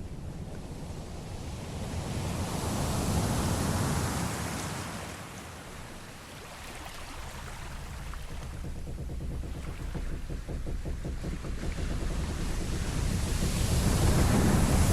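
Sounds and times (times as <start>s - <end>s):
sea waves washing: 1.7s - 14.9s.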